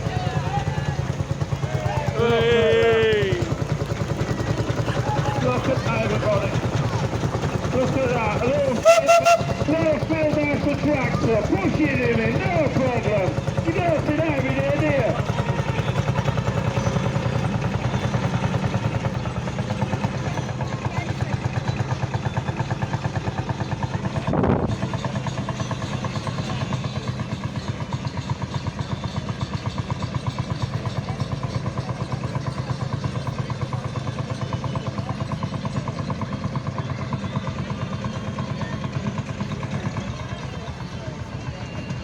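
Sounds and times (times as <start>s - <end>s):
diesel tractor engine thumping: 0.0s - 31.8s.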